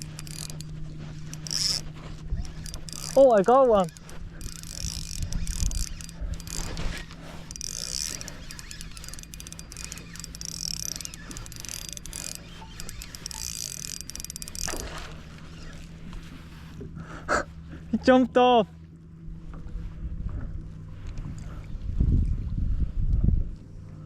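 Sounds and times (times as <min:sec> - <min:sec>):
fishing reel whirring and clicking: 0:00.0 - 0:16.4.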